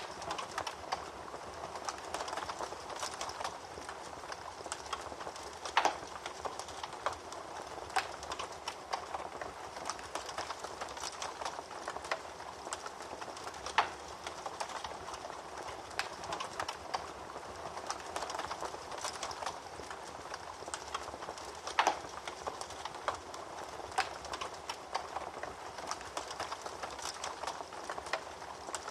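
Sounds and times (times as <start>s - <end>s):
wood fire crackling: 0.0s - 28.9s.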